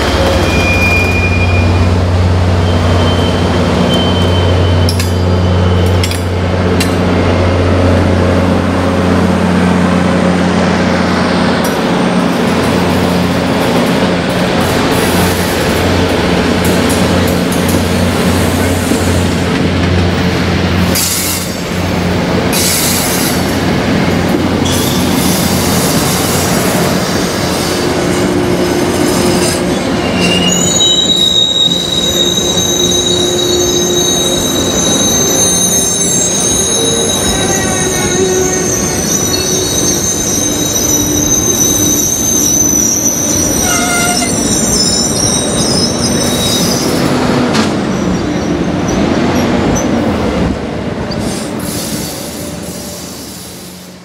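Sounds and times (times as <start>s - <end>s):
high wheel squeal: 0.0s - 6.2s, 24.6s - 47.2s
train wheels rumbling on rails: 0.0s - 54.0s.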